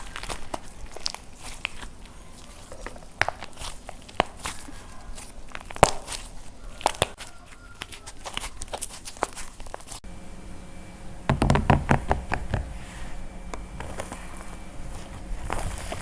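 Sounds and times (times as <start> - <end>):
dried clay cracking and crumbling: 0.0 - 10.1, 13.5 - 16.0.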